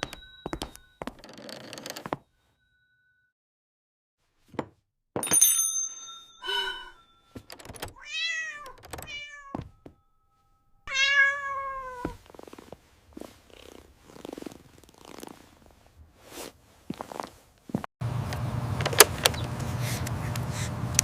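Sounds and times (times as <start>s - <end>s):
high ringing tone: 0.0s - 1.2s, 5.3s - 11.8s
cat meowing: 8.0s - 9.7s, 10.9s - 12.2s.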